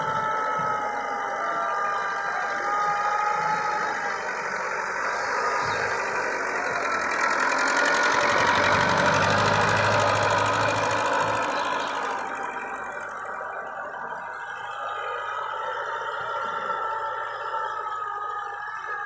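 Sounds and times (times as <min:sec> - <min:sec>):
tractor diesel engine running: 0:00.0 - 0:16.8.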